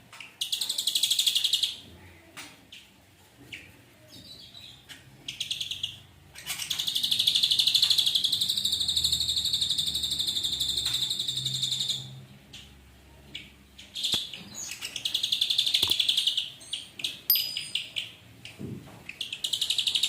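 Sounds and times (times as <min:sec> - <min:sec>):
bird singing buzzy trill: 0:06.8 - 0:12.2, 0:13.8 - 0:18.2.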